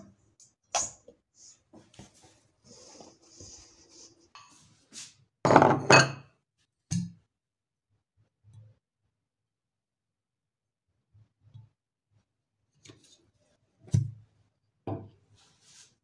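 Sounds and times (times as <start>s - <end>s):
ceramic bowls clinking on counter: 5.5s - 6.2s.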